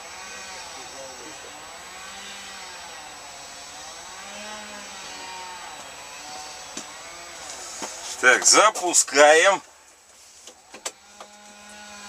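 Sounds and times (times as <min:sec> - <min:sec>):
motor running: 0:11.0 - 0:12.0.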